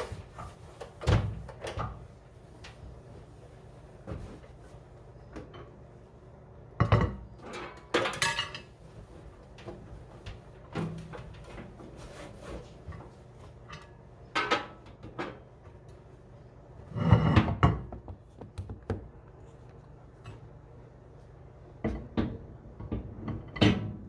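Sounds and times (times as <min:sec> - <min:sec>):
hard objects knocking: 0:17.8 - 0:19.1.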